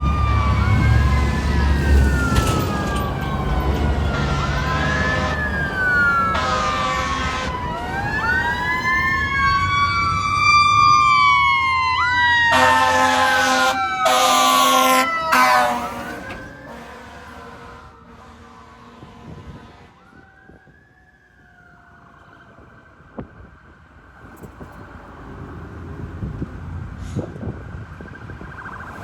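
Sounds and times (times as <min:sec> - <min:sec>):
mechanical siren wailing: 0:00.0 - 0:23.2, 0:27.9 - 0:29.0
truck engine rumble: 0:00.0 - 0:29.0
air horn blasts: 0:04.0 - 0:07.7, 0:12.5 - 0:20.1.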